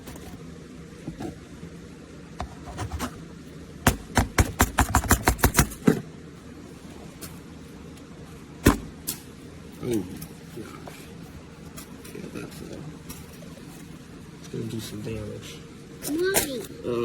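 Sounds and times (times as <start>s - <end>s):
rapid sharp knocks: 3.8s - 5.8s.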